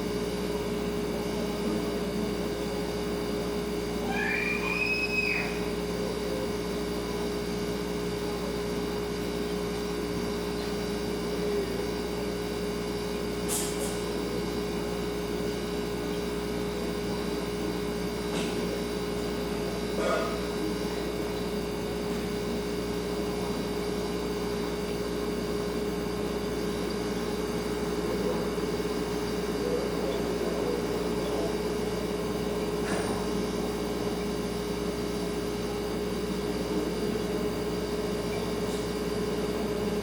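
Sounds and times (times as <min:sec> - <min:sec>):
refrigerator humming: 0:00.0 - 0:40.0.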